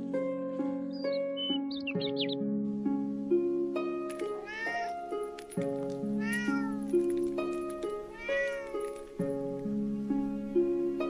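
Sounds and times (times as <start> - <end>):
music with plucked notes: 0.0 - 11.0
cat meowing: 4.3 - 5.1, 6.1 - 7.0, 8.0 - 8.9.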